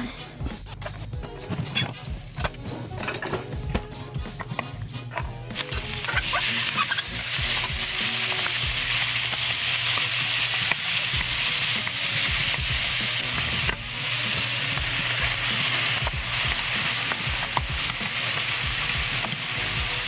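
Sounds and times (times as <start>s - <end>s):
food sizzling in a frying pan: 5.5s - 20.0s.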